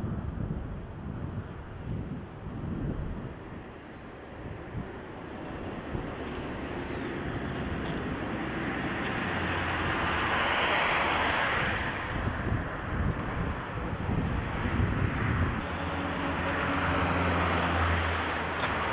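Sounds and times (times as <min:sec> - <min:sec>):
vehicle passing close by: 0:05.8 - 0:18.9.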